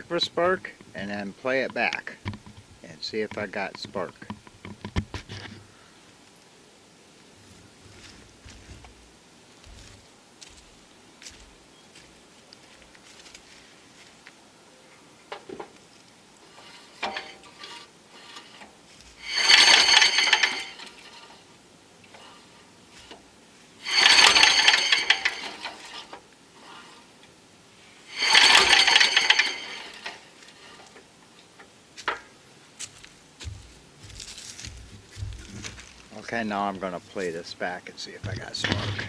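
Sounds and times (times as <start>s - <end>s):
pull starter cranking engine: 16.5s - 21.4s, 23.8s - 26.2s, 28.0s - 31.0s.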